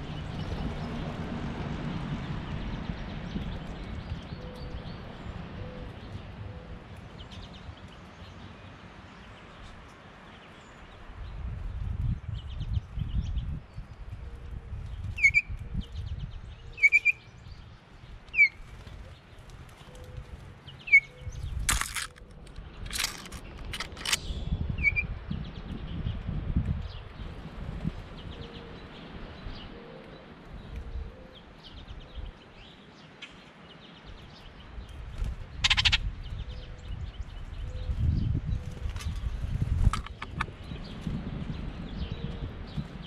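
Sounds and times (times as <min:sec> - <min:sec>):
wind rumble on microphone: 0:00.0 - 0:08.5, 0:09.2 - 0:32.8, 0:33.8 - 0:43.0
sharp bird chirps: 0:20.8 - 0:22.2.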